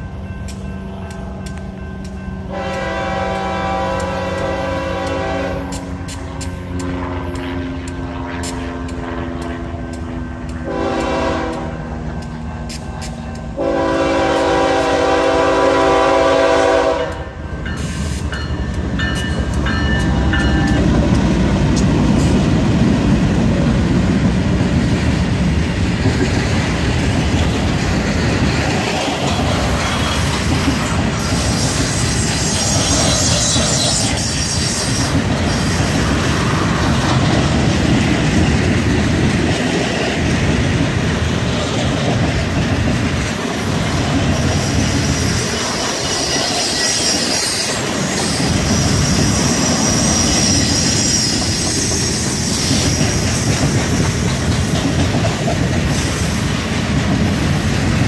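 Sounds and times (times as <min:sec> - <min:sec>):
locomotive air horn: 0:02.5 - 0:18.2
wheels clattering over rail joints: 0:17.6 - 0:58.0.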